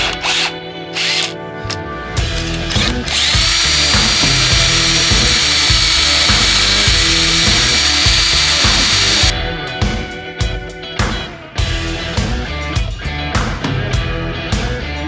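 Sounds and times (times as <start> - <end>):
power drill whining: 0.0 - 1.4, 2.4 - 9.3
background music: 0.0 - 15.0.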